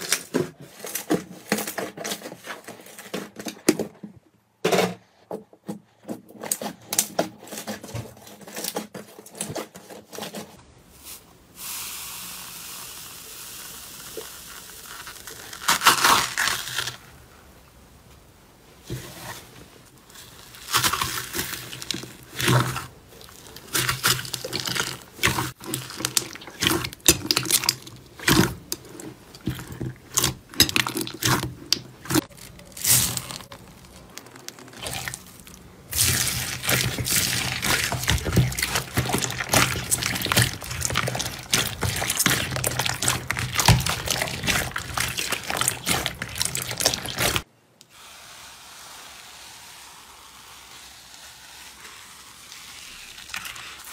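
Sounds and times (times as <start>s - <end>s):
slime popping and crackling: 14.0s - 17.0s, 20.4s - 47.5s.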